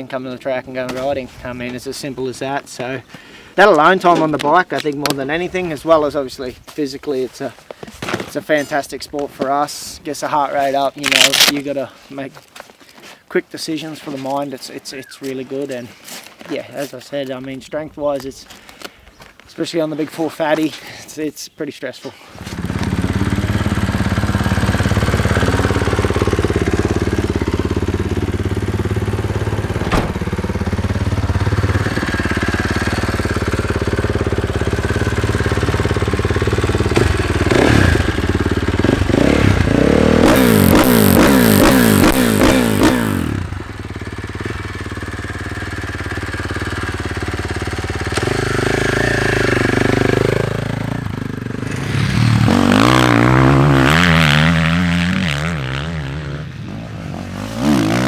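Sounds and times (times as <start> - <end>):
motocross bike engine revving: 22.4 - 58.0.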